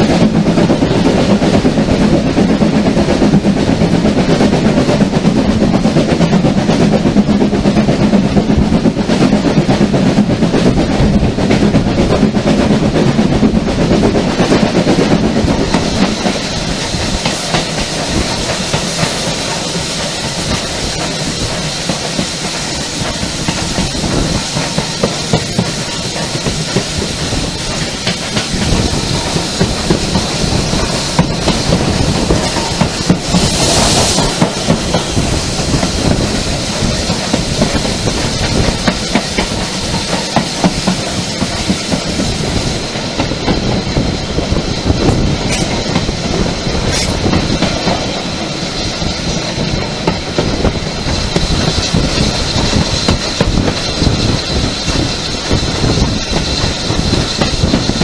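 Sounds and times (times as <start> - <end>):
train wheels rumbling on rail: 0.0 - 58.0
hiss: 14.7 - 58.0.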